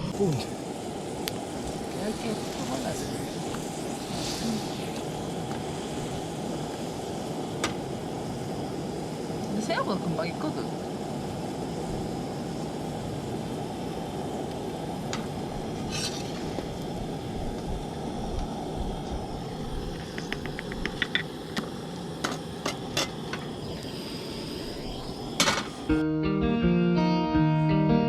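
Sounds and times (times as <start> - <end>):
guitar music: 25.9 - 28.0.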